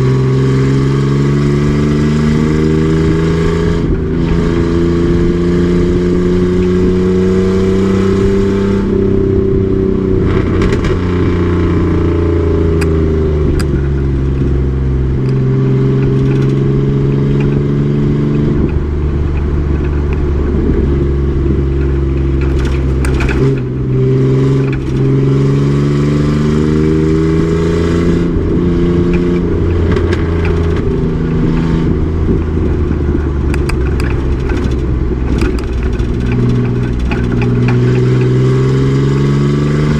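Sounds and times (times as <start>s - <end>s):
short clicks and rattles: 32.6s - 38.3s.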